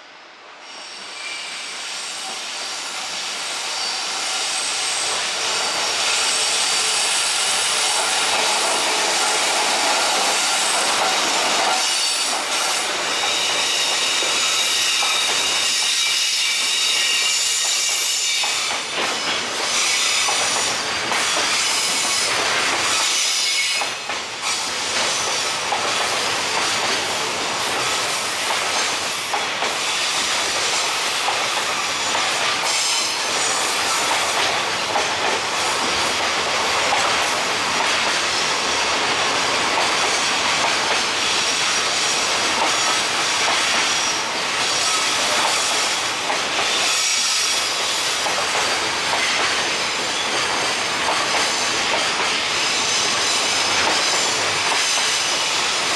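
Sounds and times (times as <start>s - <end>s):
freight train passing: 0.0s - 55.9s
wheels squealing on rails: 0.5s - 55.9s.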